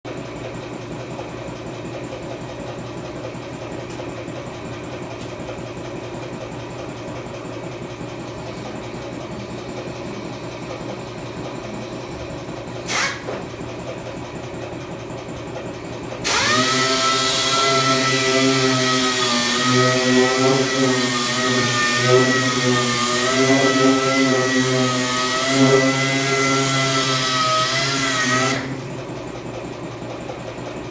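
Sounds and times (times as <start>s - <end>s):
power tool whining: 7.2s - 14.1s, 15.5s - 29.3s.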